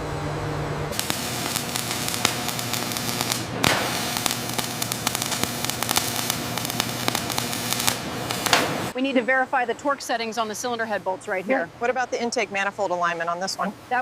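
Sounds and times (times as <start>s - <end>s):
machinery hum: 0.0s - 14.0s
crackling hiss with clicks: 1.0s - 8.9s.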